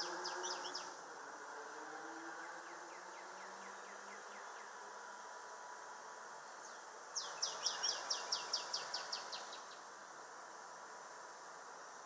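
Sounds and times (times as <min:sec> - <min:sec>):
songbird singing: 0:00.0 - 0:01.0, 0:01.7 - 0:05.4, 0:06.5 - 0:10.0
faint outdoor hiss: 0:00.0 - 0:12.0.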